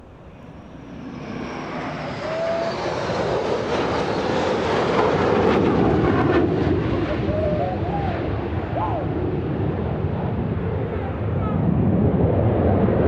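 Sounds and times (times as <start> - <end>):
faint high whine: 0.0 - 4.4
jet engine roar: 0.0 - 13.0.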